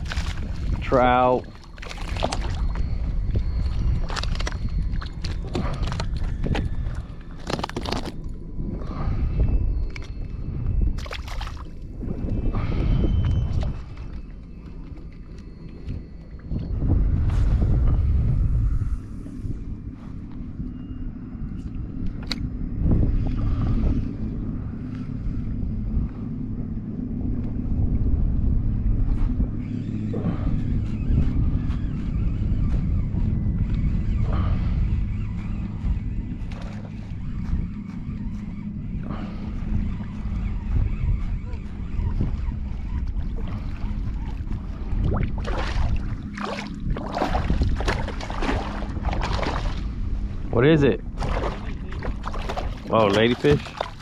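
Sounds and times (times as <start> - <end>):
water splashing beside a kayak: 0.0 - 3.0, 43.1 - 49.9, 51.2 - 54.0
boat motor running: 0.0 - 54.0
wind on microphone: 0.0 - 54.0.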